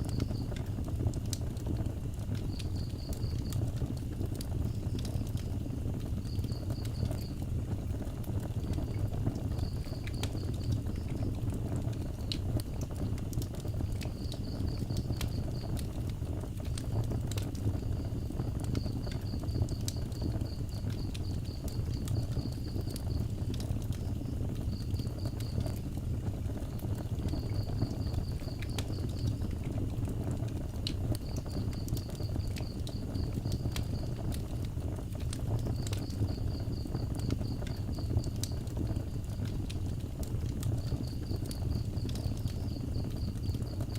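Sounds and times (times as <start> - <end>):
wood fire crackling: 0.0 - 43.9
insect chirping: 2.5 - 3.6, 27.3 - 29.5, 35.6 - 39.4, 40.8 - 43.9.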